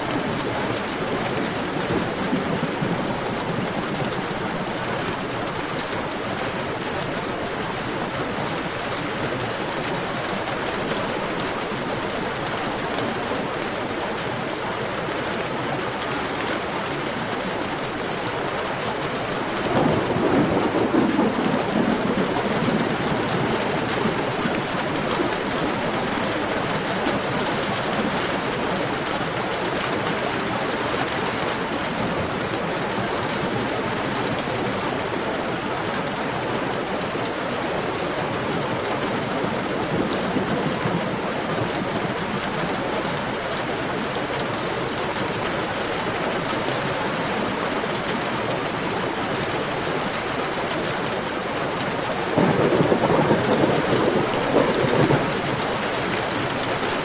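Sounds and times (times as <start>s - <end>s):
heavy rain falling: 0.0s - 57.0s
thunder rumble: 19.5s - 27.3s, 52.3s - 57.0s.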